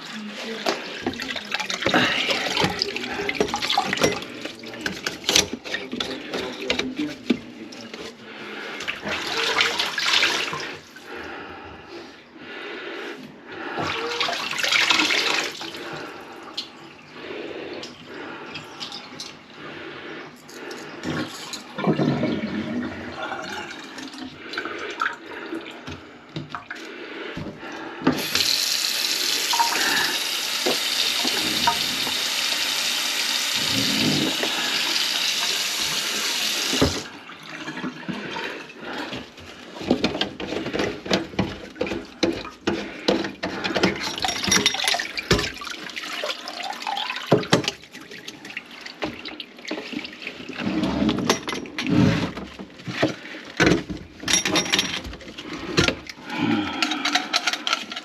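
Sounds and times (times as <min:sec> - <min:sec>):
water splashing in a sink: 0:00.0 - 0:11.1, 0:13.6 - 0:19.4, 0:28.1 - 0:58.0
tap running: 0:27.4 - 0:37.1.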